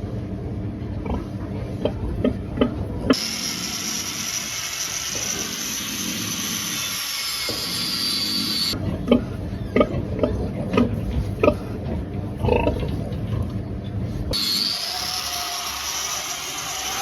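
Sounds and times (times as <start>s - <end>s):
steady whining noise: 0.0s - 17.0s
pigs grunting: 1.0s - 3.2s, 8.7s - 13.5s.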